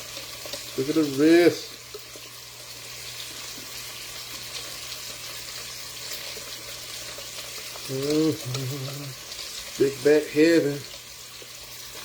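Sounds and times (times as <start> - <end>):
meat sizzling in a pan: 0.0 - 12.0
man speaking: 7.9 - 9.2, 9.8 - 10.9.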